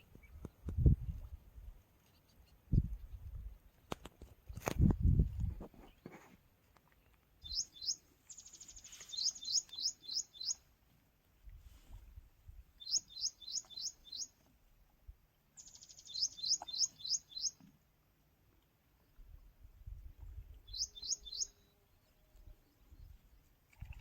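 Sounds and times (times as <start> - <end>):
bird singing whistled notes: 7.4 - 10.6, 12.8 - 14.3, 15.6 - 17.6, 20.6 - 21.8
buzzy bird trill: 7.4 - 10.6.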